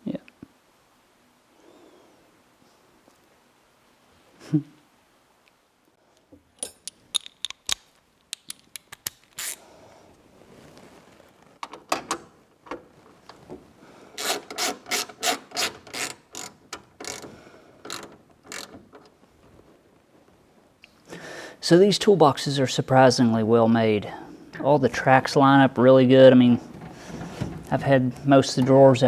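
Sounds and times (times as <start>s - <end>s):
mechanical clicking and rattling: 14.2s - 19.2s.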